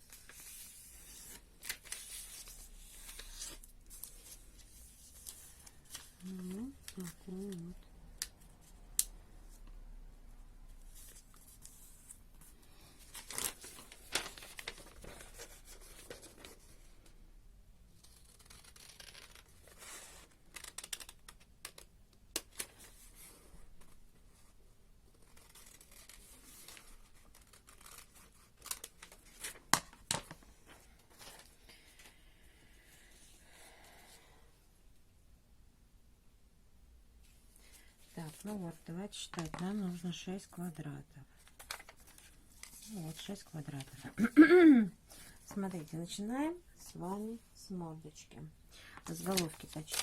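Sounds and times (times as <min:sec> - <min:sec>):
paper rustling: 0:00.0 - 0:07.7, 0:10.8 - 0:16.9, 0:25.2 - 0:32.2, 0:41.4 - 0:44.4, 0:49.0 - 0:50.0.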